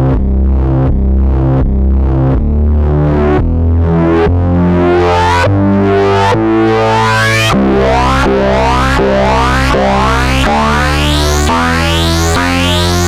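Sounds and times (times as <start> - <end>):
synthesizer sequence with filter sweeps: 2.9 - 13.0.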